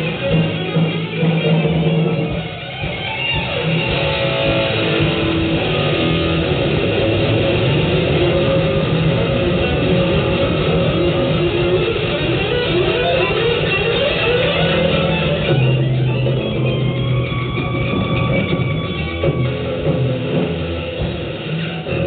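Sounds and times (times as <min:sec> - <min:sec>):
live band with electric guitar: 0:00.0 - 0:22.0.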